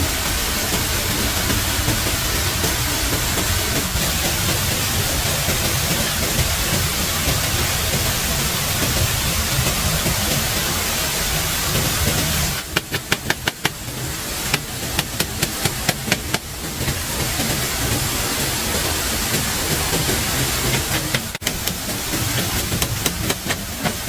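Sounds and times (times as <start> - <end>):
sharp knocks: 12.6 - 16.5, 20.6 - 24.0.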